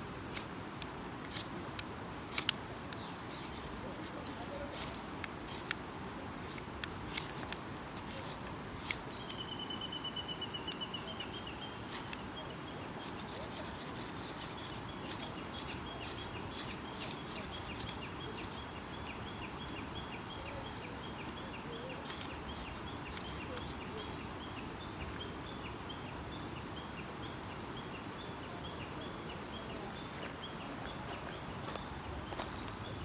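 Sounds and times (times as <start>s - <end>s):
sharp clicks: 0.3s - 5.8s, 22.0s - 24.7s.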